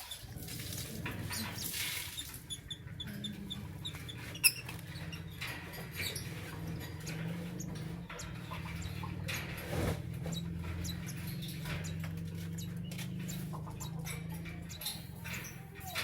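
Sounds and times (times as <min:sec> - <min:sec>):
lovebirds chirping: 0:10.3 - 0:16.0.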